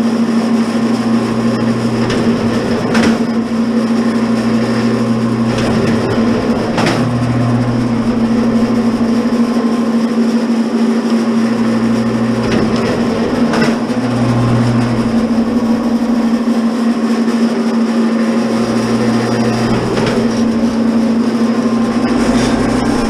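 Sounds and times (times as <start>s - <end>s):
wire stripper humming: 0.8s - 10.2s, 11.3s - 16.7s, 18.4s - 23.0s
sharp clicks and knocks: 1.2s - 9.6s, 11.6s - 16.5s, 18.6s - 23.0s.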